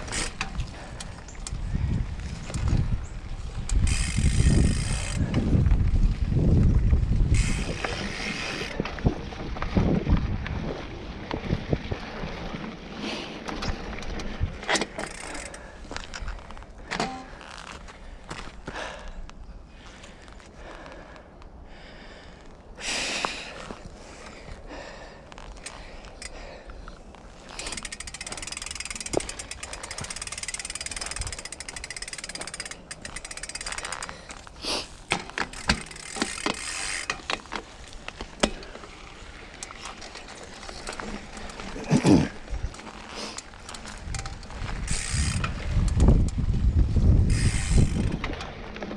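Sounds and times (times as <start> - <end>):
bike rear hub ticking: 0.0 - 5.6, 14.8 - 15.7, 27.5 - 34.4, 35.1 - 37.6, 42.6 - 48.3
wind buffeting microphone: 0.0 - 12.8, 43.8 - 48.9
bike clicks and rattles: 0.0 - 21.6, 22.8 - 48.9
bike tyres rolling on dirt: 0.0 - 48.9
bike knocking on rough ground: 13.4 - 18.5, 27.5 - 34.4, 35.0 - 39.0.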